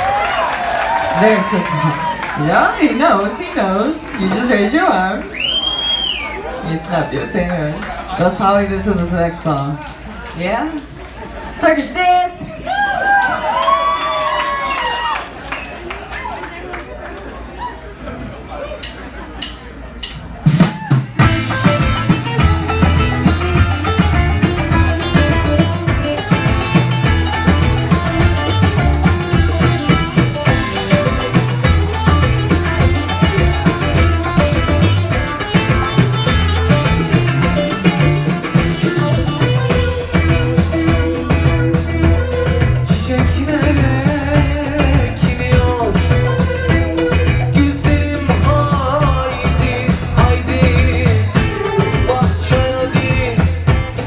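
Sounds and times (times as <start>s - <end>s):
drum kit beat: 18.8s - 54.0s
psychedelic rock band playing: 20.0s - 54.0s.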